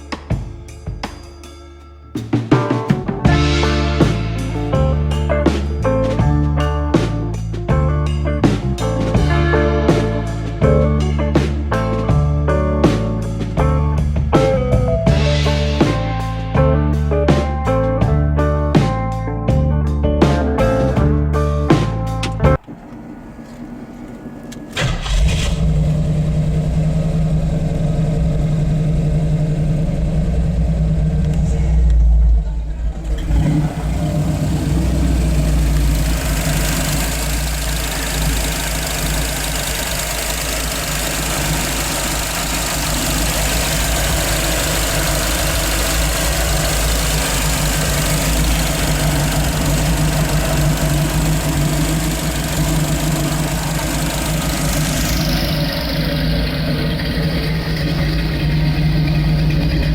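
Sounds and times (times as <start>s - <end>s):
car engine idling: 22.1s - 59.9s.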